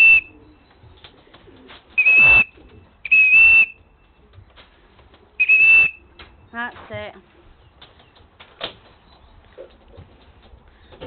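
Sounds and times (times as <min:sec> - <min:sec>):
shrill whistle blasts: 0:00.0 - 0:00.3, 0:02.0 - 0:02.5, 0:03.1 - 0:03.8, 0:05.4 - 0:06.0.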